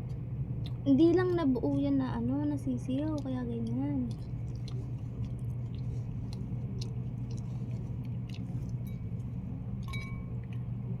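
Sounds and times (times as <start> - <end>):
person chewing: 0.0 - 0.8, 2.9 - 10.8
steady low hum: 0.0 - 11.0.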